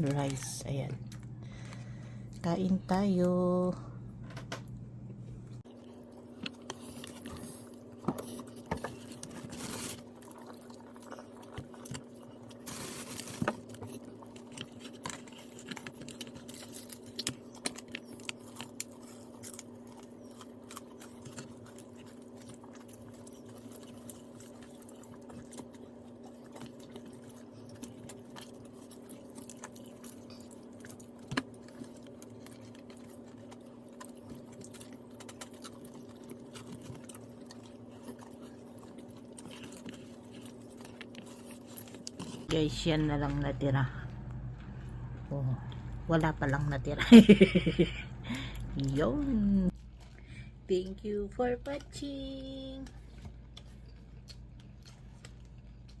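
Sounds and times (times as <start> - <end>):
low hum: 0.0 - 11.5, 41.3 - 56.0
person chewing crunchy food: 5.5 - 42.5, 52.9 - 56.0.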